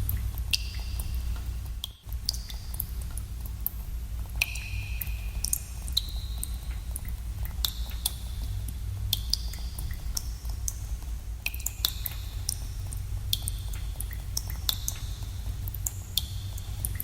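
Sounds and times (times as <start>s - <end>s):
low rumble: 0.0s - 1.8s
water drops plinking in a cave: 0.0s - 17.0s.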